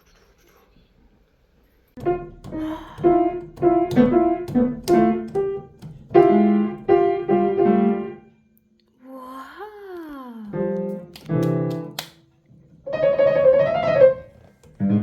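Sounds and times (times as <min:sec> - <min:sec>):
piano melody: 0:02.0 - 0:08.4, 0:10.6 - 0:12.0, 0:12.8 - 0:15.0.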